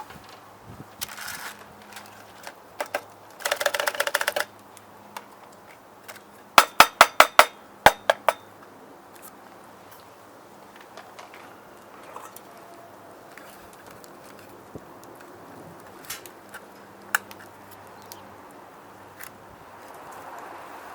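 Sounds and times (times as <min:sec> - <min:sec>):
rapid clicks of utensils: 0:01.0 - 0:04.5
sharp metallic knocks: 0:06.6 - 0:08.5.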